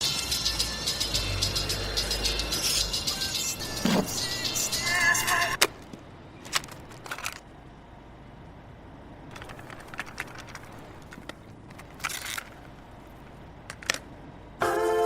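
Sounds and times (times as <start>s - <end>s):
faint crackles and clicks: 9.3s - 14.1s.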